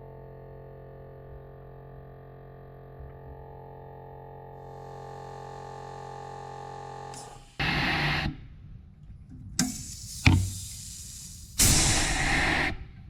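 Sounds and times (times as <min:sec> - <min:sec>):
air compressor humming: 0:09.6 - 0:12.8
air hissing: 0:09.6 - 0:12.9.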